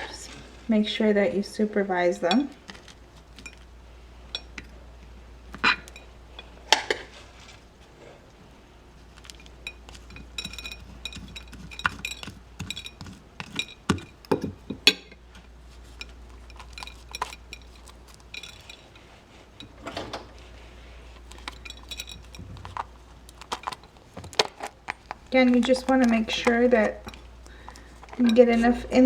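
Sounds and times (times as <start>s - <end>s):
metal spoon clinking on a dish: 4.3s - 4.7s, 9.2s - 15.2s, 15.9s - 19.0s, 21.2s - 23.8s, 25.5s - 28.8s.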